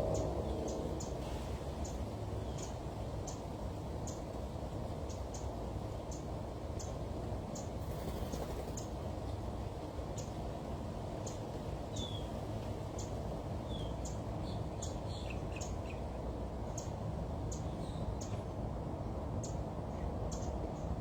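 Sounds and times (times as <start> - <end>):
steady low rumble: 0.0 - 3.1.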